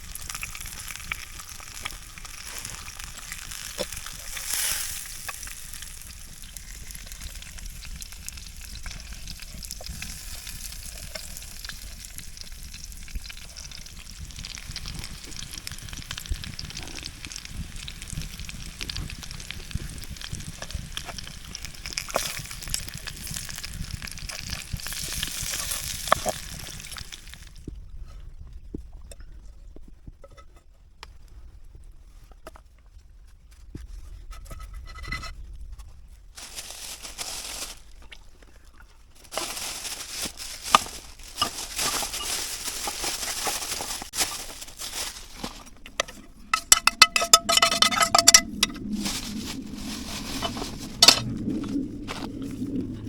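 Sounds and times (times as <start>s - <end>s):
rustling and handling noises: 0.2s - 12.5s, 24.3s - 53.0s.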